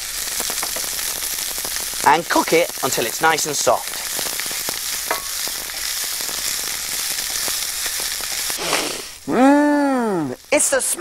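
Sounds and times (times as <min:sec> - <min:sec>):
onion sizzling in oil: 0:00.0 - 0:11.0
person saying mmm: 0:08.6 - 0:10.4.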